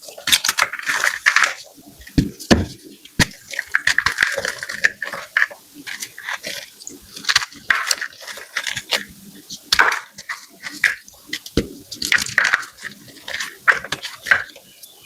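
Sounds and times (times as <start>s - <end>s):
chalk crunching and crackling: 0.0s - 14.7s
deep thuds: 2.0s - 3.5s, 11.5s - 12.4s.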